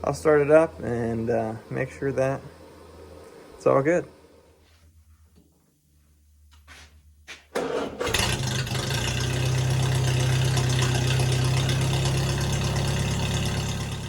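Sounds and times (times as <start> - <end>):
engine cranking: 7.6 - 14.0
engine idling: 7.6 - 14.0.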